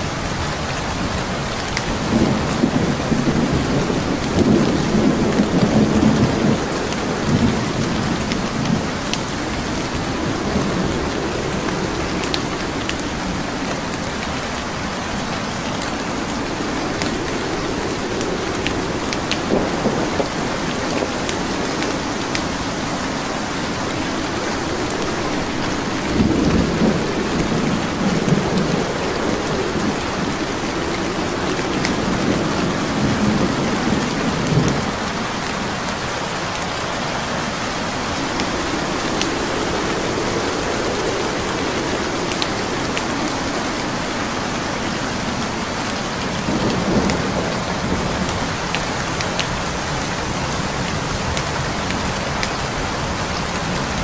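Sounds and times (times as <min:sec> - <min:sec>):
steady rain: 0:00.0 - 0:54.0
wood fire crackling: 0:00.0 - 0:54.0.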